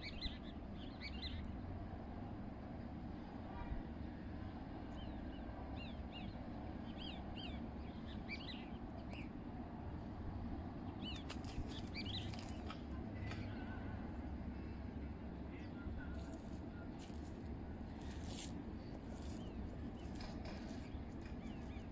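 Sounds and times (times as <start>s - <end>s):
small birds chirping: 10.9s - 13.7s, 15.6s - 21.9s.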